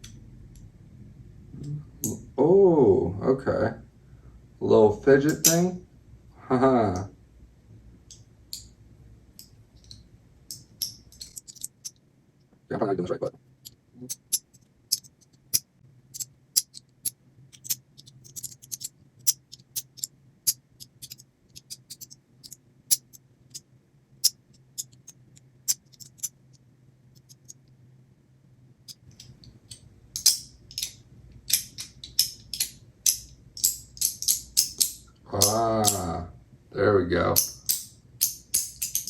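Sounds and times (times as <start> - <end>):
magnetic fidget toy clicking: 13.6 - 23.6, 28.9 - 36.2.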